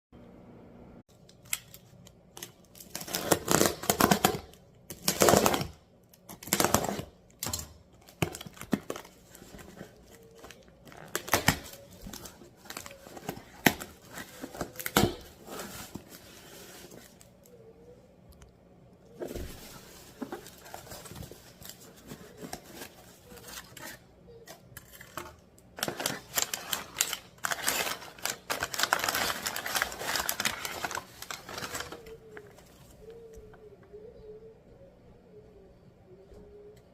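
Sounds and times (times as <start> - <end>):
packaging tape tearing: 1.3 - 9.3, 25.8 - 32.0
packaging rustling and crinkling: 6.3 - 17.6, 19.1 - 33.4.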